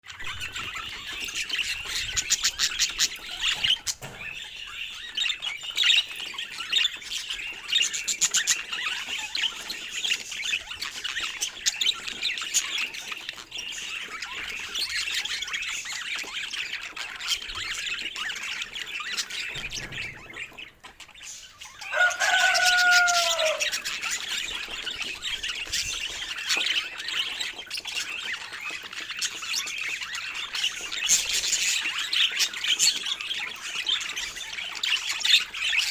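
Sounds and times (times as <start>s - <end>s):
budgerigars chattering and warbling: 0.1s - 35.9s
low curving bird call: 21.8s - 24.0s.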